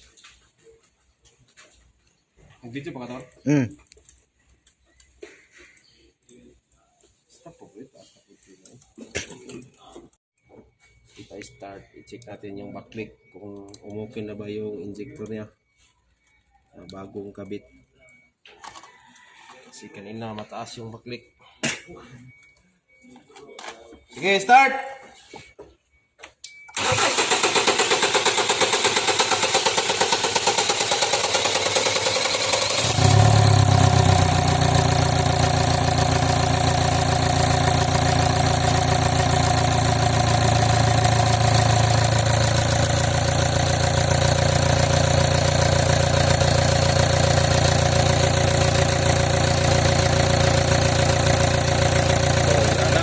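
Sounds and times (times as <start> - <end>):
diesel engine cranking: 26.7 - 53.0
diesel engine idling: 28.0 - 53.0.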